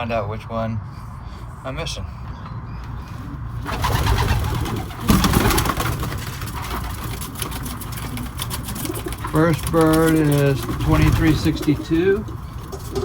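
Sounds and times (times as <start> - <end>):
pigeons cooing: 2.1 - 13.0
pigeon wings flapping: 3.6 - 13.0.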